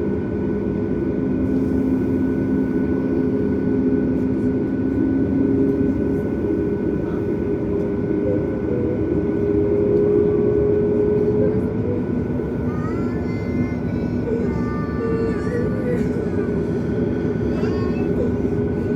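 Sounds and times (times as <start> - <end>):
jet engine cabin rumble: 0.0 - 18.9.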